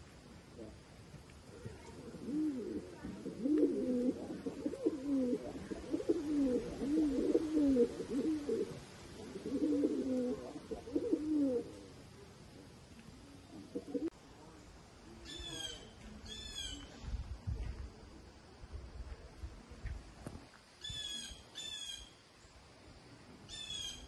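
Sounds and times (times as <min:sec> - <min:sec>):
pigeons cooing: 0:01.5 - 0:11.9, 0:13.6 - 0:14.1.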